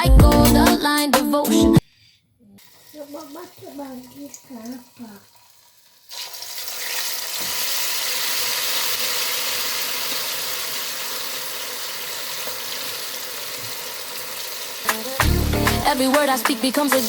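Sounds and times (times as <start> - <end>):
plantain frying in hot oil: 2.6 - 15.2.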